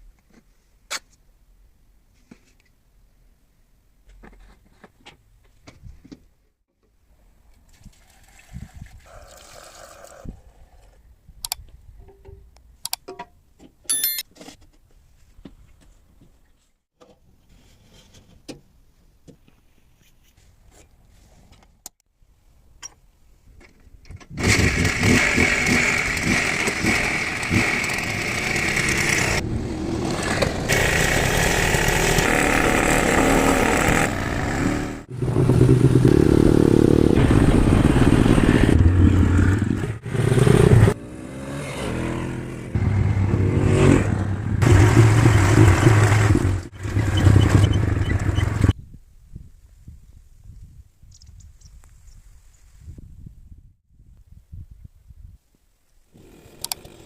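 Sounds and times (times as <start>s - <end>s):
scooter engine running: 24.4s - 41.0s, 44.2s - 48.8s.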